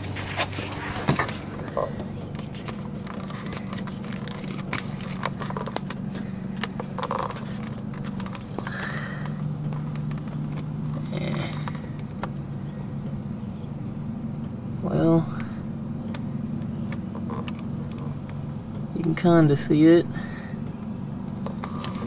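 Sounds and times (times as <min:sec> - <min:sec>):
car engine idling: 0:00.0 - 0:22.0
camera handling clicks and rustles: 0:00.1 - 0:10.7, 0:21.3 - 0:22.0.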